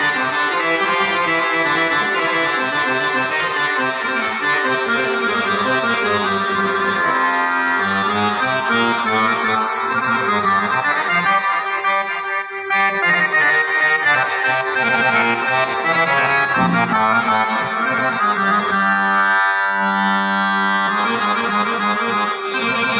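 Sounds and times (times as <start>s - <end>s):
accordion melody over chords: 0.0s - 22.9s.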